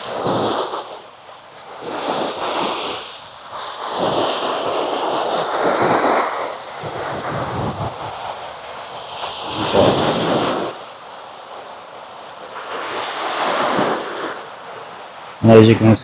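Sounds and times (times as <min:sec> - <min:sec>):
sea waves breaking on sand: 0:00.0 - 0:15.4
wind on microphone: 0:05.6 - 0:10.8.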